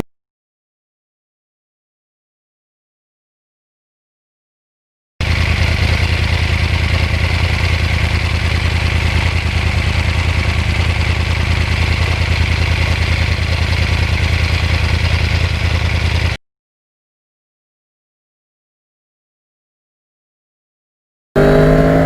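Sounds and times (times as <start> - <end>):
motorcycle engine idling: 5.2 - 16.4.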